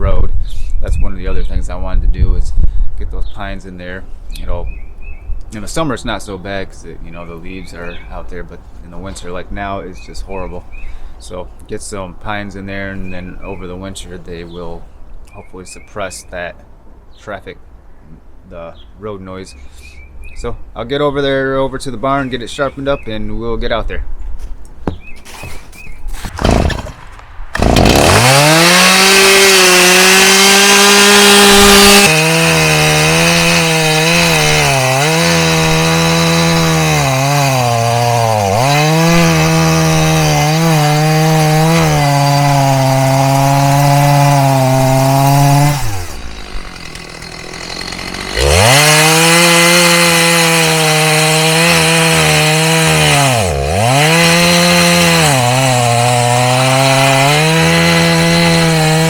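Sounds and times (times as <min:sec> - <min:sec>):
chainsaw cutting wood: 0:26.2 - 0:59.0.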